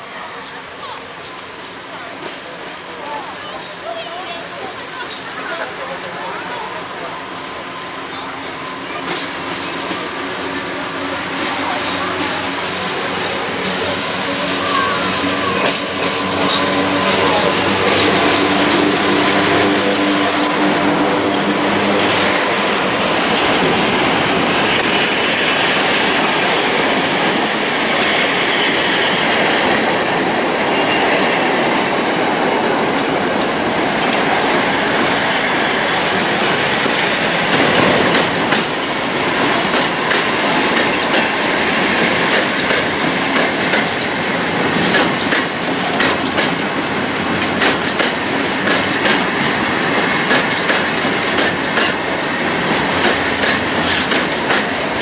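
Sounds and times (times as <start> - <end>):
train wheels rumbling on rails: 0.0 - 55.0
wheels clickety-clack over rail joints: 0.0 - 55.0.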